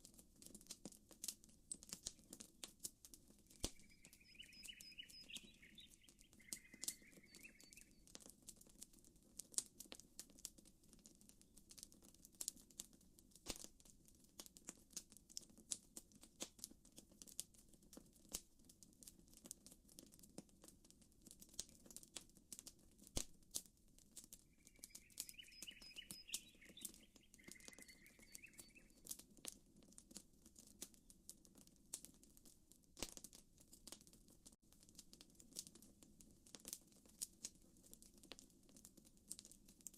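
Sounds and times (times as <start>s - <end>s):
campfire crackling and popping: 0.0s - 39.9s
small bird twittering: 3.6s - 8.0s, 24.5s - 29.1s.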